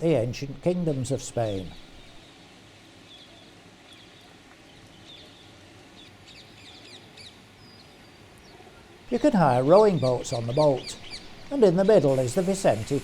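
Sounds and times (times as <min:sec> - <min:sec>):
small birds chirping: 0:00.4 - 0:02.2, 0:09.1 - 0:13.0.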